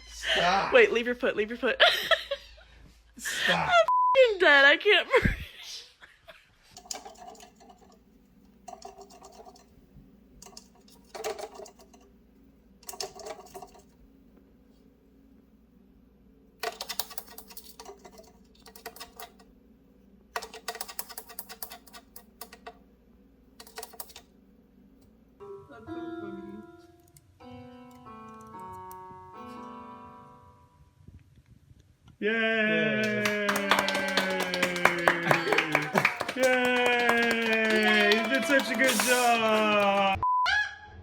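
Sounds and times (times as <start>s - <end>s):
faint low hum: 0.0s - 38.7s
rapid tapping clicks: 16.6s - 19.4s, 20.4s - 22.8s, 23.6s - 24.3s.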